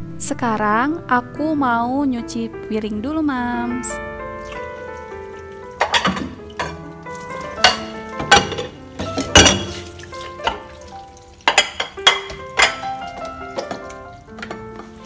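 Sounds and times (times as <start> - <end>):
background music: 0.0 - 15.0
running tap: 4.4 - 14.6
dishes clattering in sink: 5.6 - 15.0.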